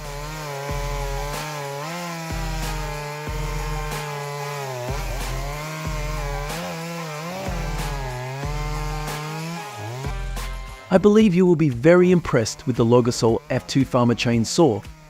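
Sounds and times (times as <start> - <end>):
chainsaw cutting: 0.0 - 15.0
background music with low beat: 2.3 - 14.0.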